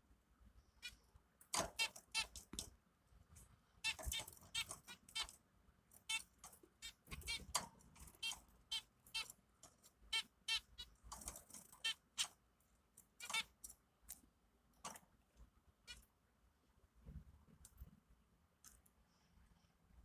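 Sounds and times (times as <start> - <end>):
baby birds cheeping: 1.6 - 2.5, 3.8 - 5.4, 6.0 - 12.4, 13.2 - 13.7, 15.8 - 16.1.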